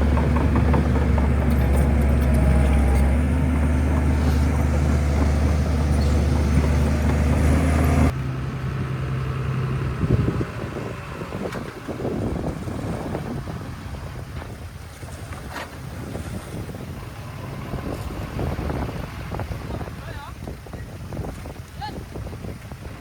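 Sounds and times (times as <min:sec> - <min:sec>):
rough background noise: 0:00.0 - 0:08.2
diesel engine humming: 0:00.0 - 0:21.0.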